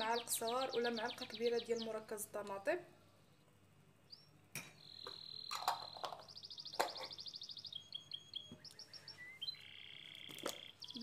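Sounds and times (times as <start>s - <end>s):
songbird singing: 0.0s - 2.6s, 3.2s - 11.0s.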